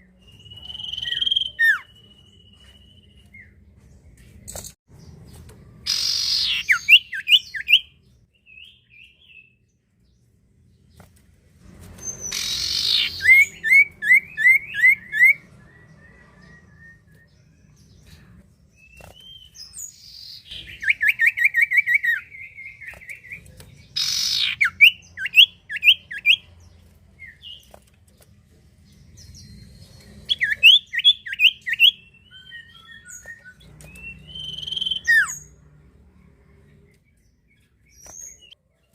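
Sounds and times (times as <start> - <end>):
bird singing whistled notes: 0.0 - 3.6, 5.9 - 9.6, 12.0 - 18.0, 18.8 - 26.5, 29.2 - 35.6.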